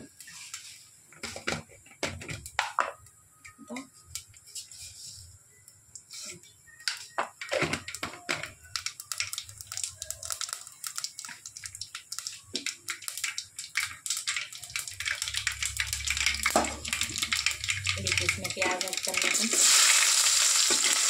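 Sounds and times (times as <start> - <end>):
seeds crackling in hot oil: 6.0 - 21.0.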